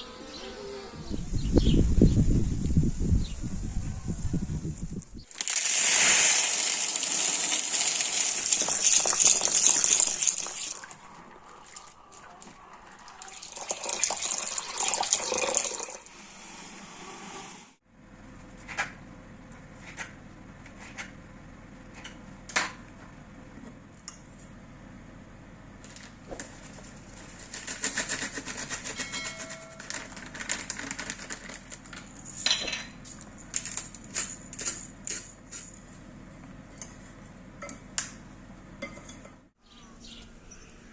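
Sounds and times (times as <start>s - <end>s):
water running from kitchen tap: 5.4s - 11.9s, 13.1s - 16.1s
dishes and utensils clinking: 28.7s - 30.2s, 32.3s - 35.9s, 38.8s - 39.4s.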